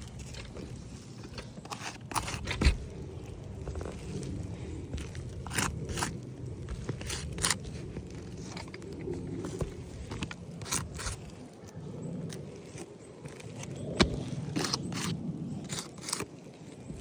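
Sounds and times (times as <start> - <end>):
shoes crunching on gritty roof: 0.0 - 11.6.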